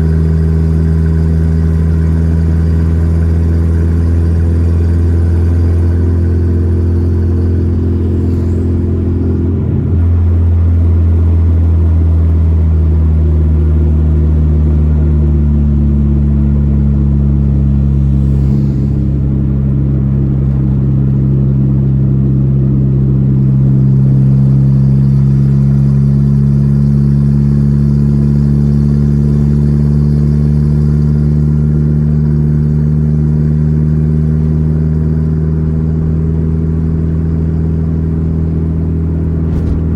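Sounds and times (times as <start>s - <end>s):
car engine droning while driving: 0.0s - 39.9s.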